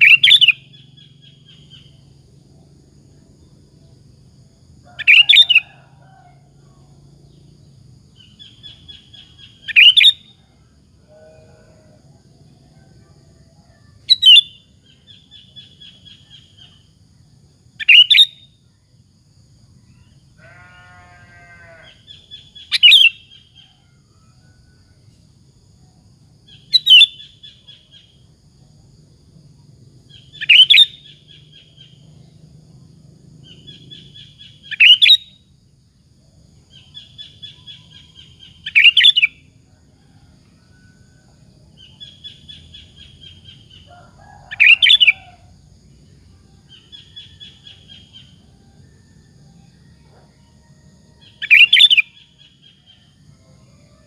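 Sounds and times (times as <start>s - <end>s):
bulbul sharp calls: 0.0s - 2.0s, 4.9s - 5.9s, 8.2s - 10.3s, 14.1s - 16.9s, 17.8s - 18.4s, 20.4s - 23.5s, 26.5s - 28.1s, 30.1s - 32.0s, 33.4s - 35.4s, 36.7s - 39.4s, 41.8s - 45.4s, 51.4s - 52.6s.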